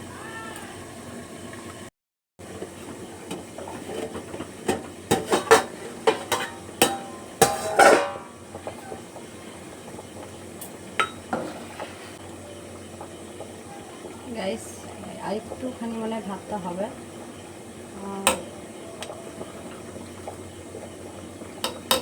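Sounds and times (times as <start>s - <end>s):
kitchen background: 2.4s - 17.2s, 17.8s - 22.0s
utensils clinking against pots: 3.7s - 9.0s.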